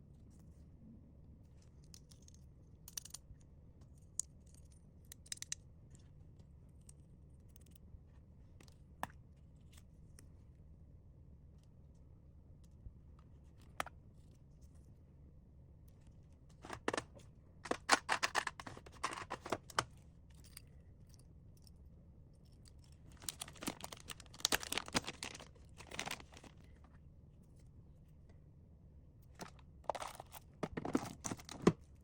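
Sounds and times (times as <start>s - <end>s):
packaging crinkling and tearing: 16.6s - 19.8s, 23.1s - 26.8s, 29.4s - 31.8s.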